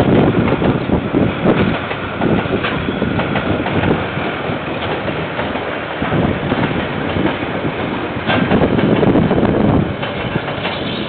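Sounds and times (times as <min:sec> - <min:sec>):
train rumbling past: 0:00.0 - 0:11.0
wheels clattering on rails: 0:00.0 - 0:11.0
wind noise: 0:00.0 - 0:11.0.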